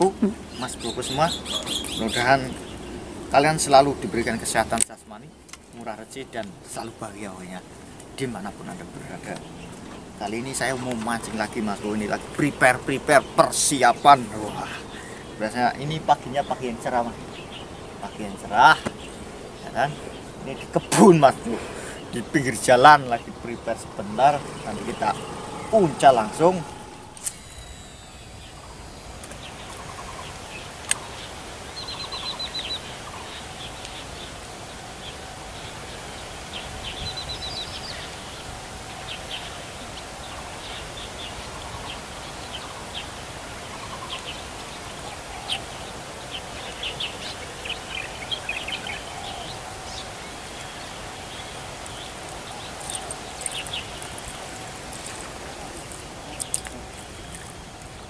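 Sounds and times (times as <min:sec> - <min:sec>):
birds chirping and trilling: 0:00.0 - 0:58.0
faint steady hum: 0:00.0 - 0:58.0
sharp click: 0:26.4 - 0:28.4.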